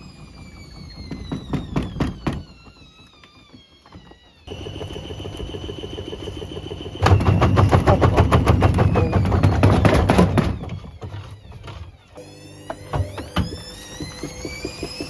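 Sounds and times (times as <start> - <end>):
washer dryer banging: 7.0 - 15.0.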